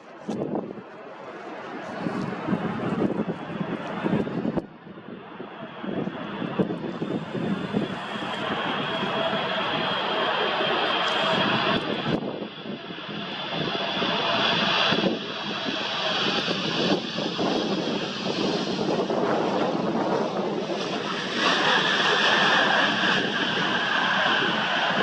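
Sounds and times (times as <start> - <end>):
jet aircraft engines passing: 0.2 - 25.0.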